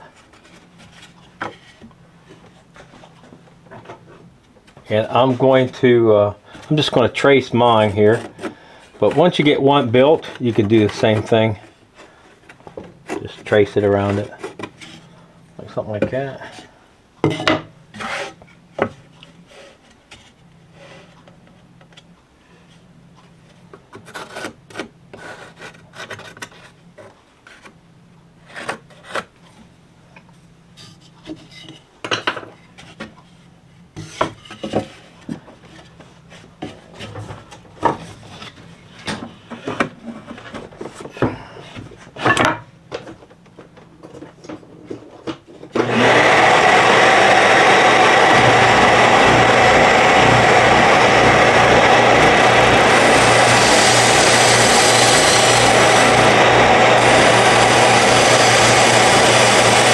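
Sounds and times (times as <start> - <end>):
power tool starting up: 45.8 - 59.9.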